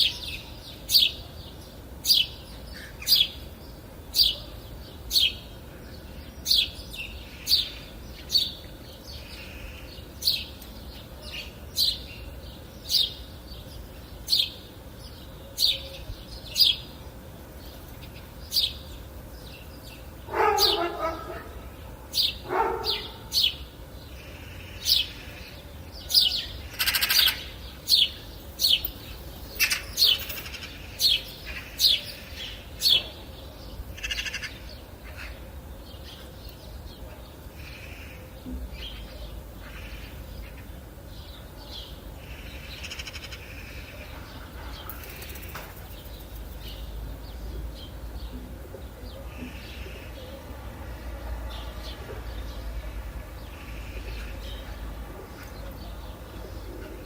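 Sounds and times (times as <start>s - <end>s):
bird chirps: 18.1s - 21.5s.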